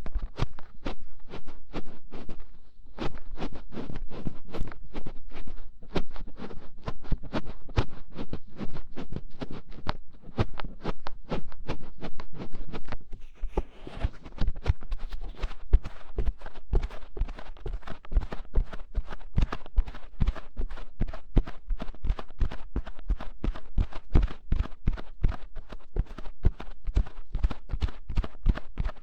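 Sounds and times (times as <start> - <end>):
scratching on microphone ear: 0.0 - 29.0.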